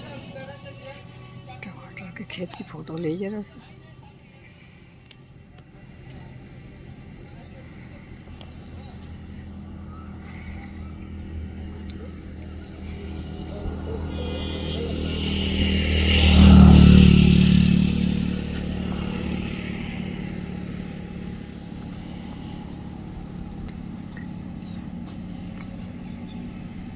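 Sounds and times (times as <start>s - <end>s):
steady low engine hum: 0.0s - 26.9s
vehicle passing close by: 6.0s - 26.9s.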